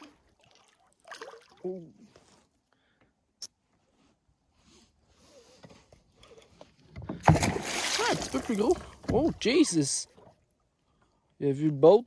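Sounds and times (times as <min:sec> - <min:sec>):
fish splashing in water: 0:07.2 - 0:09.4.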